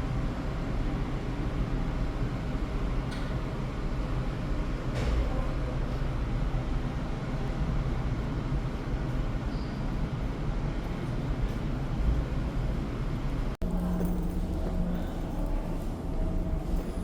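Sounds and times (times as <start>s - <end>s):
ferry engines rumbling: 10.9s - 17.0s.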